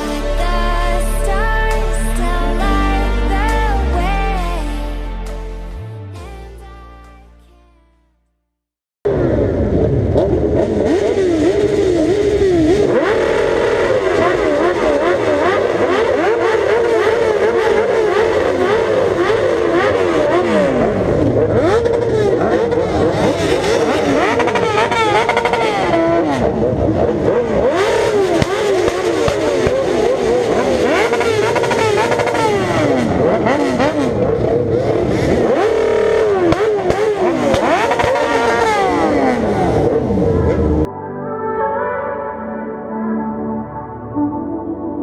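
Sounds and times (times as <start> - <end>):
motorcycle engines revving: 0.0 - 3.6, 9.1 - 40.9.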